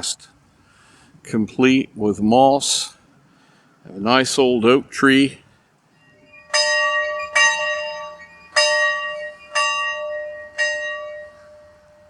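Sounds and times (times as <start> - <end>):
school bell ringing: 5.9 - 12.0.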